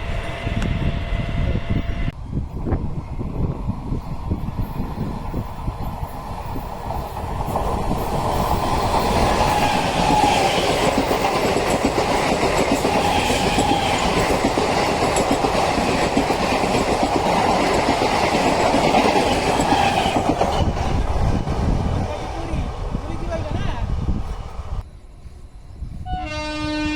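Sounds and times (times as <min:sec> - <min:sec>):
train wheels clattering past: 0:06.0 - 0:21.8.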